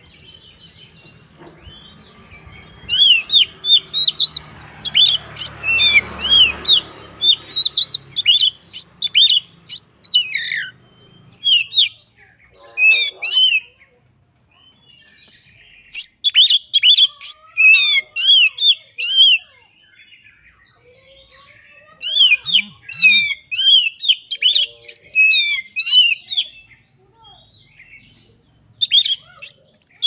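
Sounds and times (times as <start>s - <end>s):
bird singing whistled notes: 1.6s - 12.1s, 22.1s - 30.0s.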